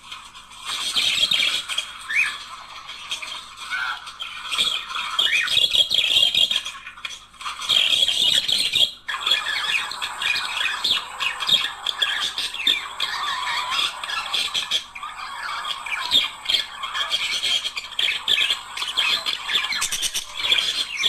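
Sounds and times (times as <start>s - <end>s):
budgerigars chattering: 7.6s - 21.0s.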